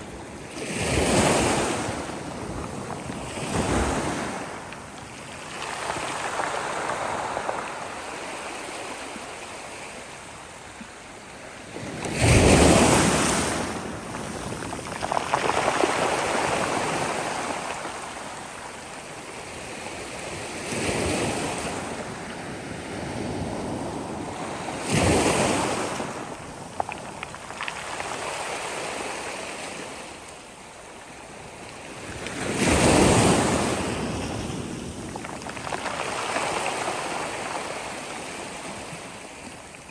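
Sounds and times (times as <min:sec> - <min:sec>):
sea waves breaking on shore: 0:00.0 - 0:30.3, 0:31.3 - 0:39.9.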